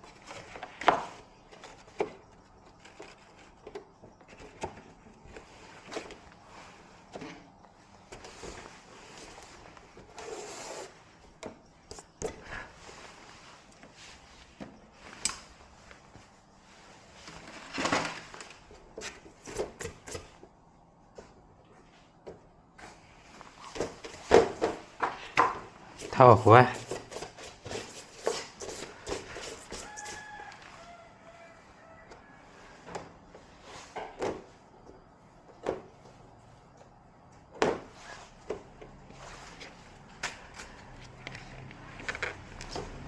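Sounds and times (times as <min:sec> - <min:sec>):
scraping rustle: 0:25.9 - 0:32.8.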